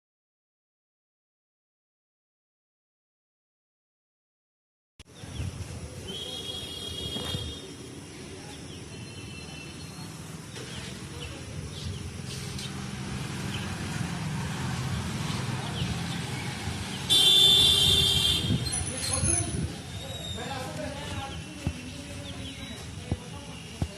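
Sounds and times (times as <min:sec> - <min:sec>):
street traffic rumbling: 0:05.0 - 0:23.9.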